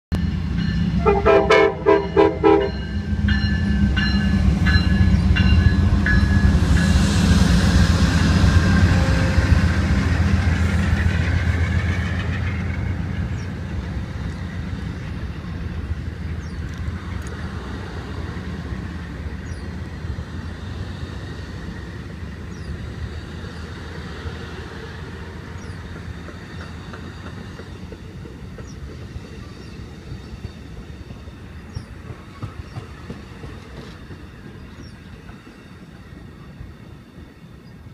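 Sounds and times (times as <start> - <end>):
locomotive rumble: 0.1 - 37.9
wheels rushing on rail: 0.1 - 37.9
train horn short blasts: 1.0 - 3.0
wheels clacking over rail joints: 25.2 - 35.8.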